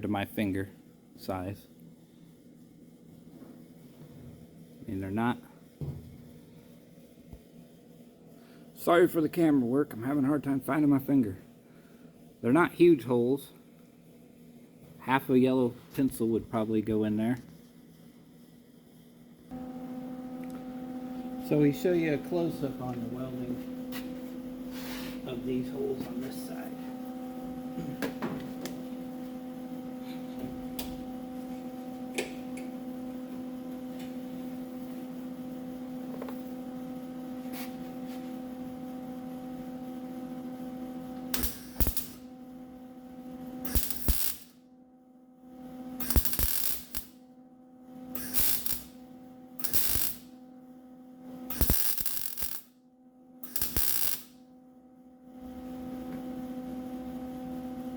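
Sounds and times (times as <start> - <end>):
steady electrical hum: 0.0 - 57.9
welder arc bursts: 41.3 - 42.3, 43.6 - 44.6, 45.9 - 47.2, 48.1 - 50.4, 51.5 - 52.8, 53.4 - 54.4.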